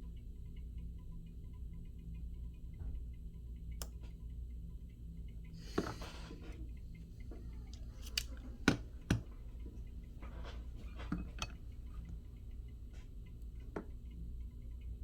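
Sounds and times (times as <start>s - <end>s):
hand tools clicking against phone: 7.7s - 9.3s.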